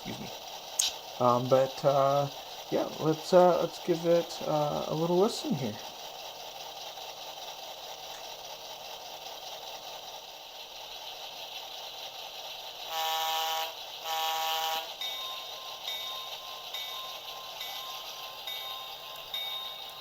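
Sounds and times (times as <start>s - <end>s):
model locomotive engine sound: 0.0s - 20.0s
bell-like ringing: 14.9s - 20.0s.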